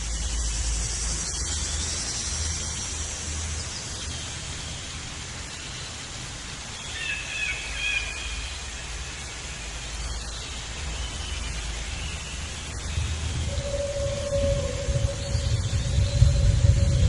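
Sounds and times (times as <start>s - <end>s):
steady outdoor hiss: 0.0s - 17.0s
low rumble: 12.8s - 17.0s.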